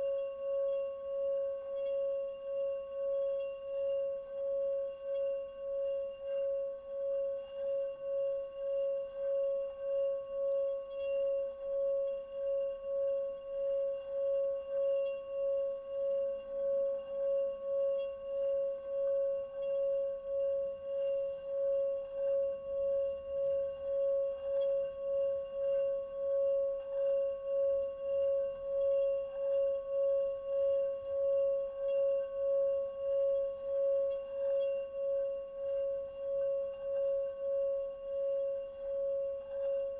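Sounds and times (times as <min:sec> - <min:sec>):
singing bowl ringing: 0:00.0 - 0:39.9.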